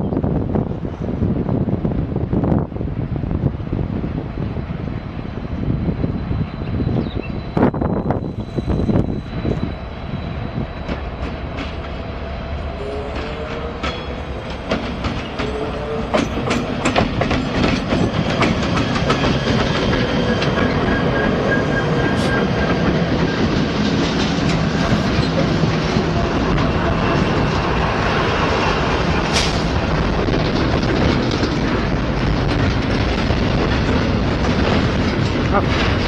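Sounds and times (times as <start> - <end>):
diesel locomotives rumbling: 0.0 - 36.0
wheels clicking over rail joints: 13.2 - 21.2, 29.2 - 36.0.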